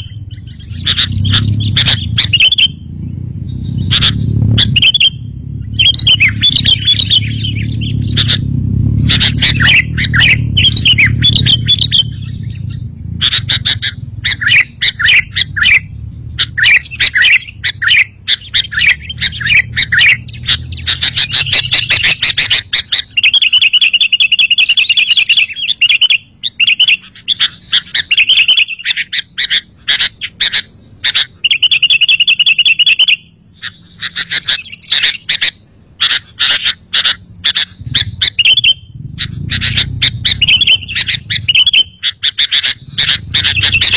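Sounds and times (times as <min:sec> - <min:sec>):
low rumble: 0:00.0 - 0:22.8, 0:37.7 - 0:43.9
bird chirping and trilling: 0:00.0 - 0:43.9.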